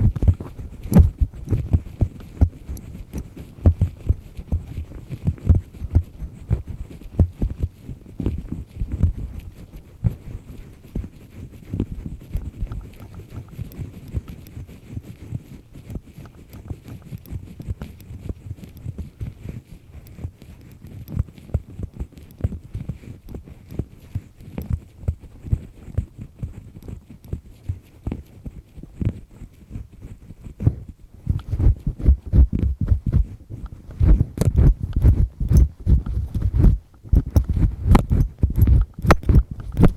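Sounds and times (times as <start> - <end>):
dull low thuds: 0.0 - 2.8, 30.6 - 39.9
ear pick scraping inside ear: 0.0 - 39.9.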